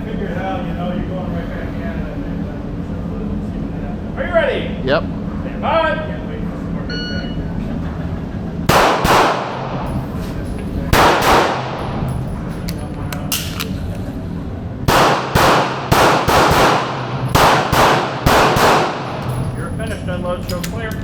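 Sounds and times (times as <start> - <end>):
pistol shots: 8.7 - 9.8, 10.9 - 12.0, 14.9 - 19.4.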